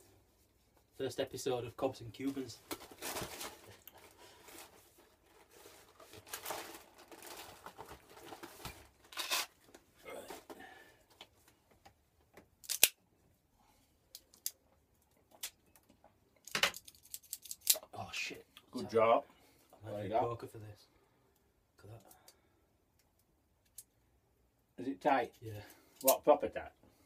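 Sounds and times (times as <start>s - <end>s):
cigar rustling: 2.2s - 10.6s.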